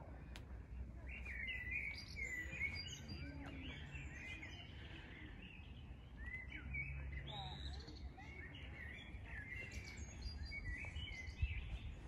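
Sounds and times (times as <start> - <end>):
songbirds chirping and warbling: 0.0 - 12.0.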